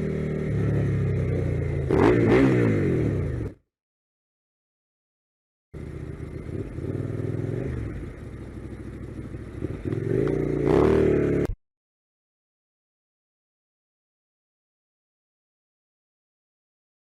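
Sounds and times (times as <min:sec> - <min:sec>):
vehicle engine revving: 0:00.0 - 0:03.6, 0:05.8 - 0:11.6.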